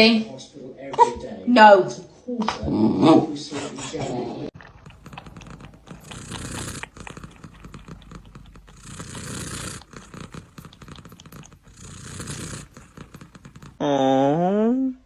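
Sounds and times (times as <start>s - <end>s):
cat purring: 4.5s - 13.8s.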